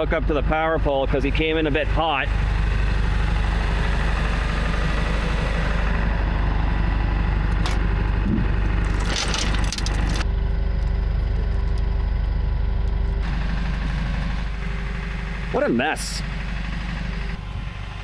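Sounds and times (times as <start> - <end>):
tow truck engine idling: 0.0 - 18.0
short metallic rattle: 8.7 - 10.2.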